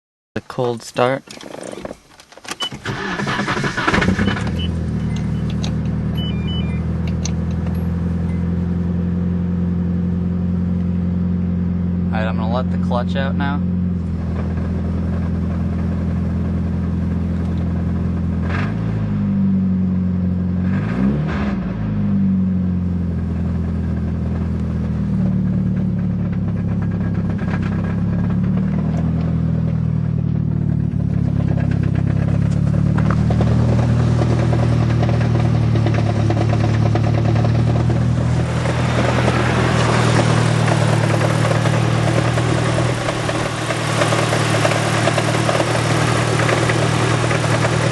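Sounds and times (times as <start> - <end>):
car engine idling: 0.4 - 18.4, 22.3 - 47.9
engine knocking clatter: 23.8 - 47.9.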